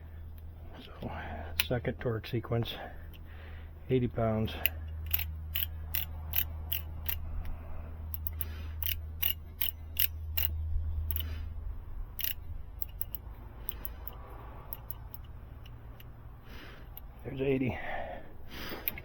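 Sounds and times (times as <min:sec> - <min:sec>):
low steady hum: 0:00.0 - 0:19.0
torque wrench ratchet clicking: 0:04.5 - 0:07.5, 0:08.1 - 0:11.3, 0:12.1 - 0:16.2.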